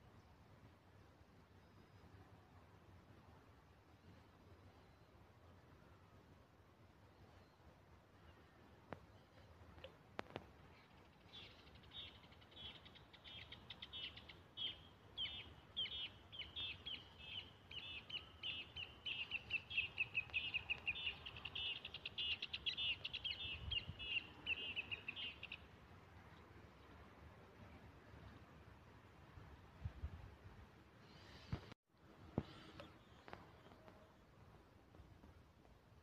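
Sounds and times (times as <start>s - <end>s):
bird chirping: 10.7s - 25.7s.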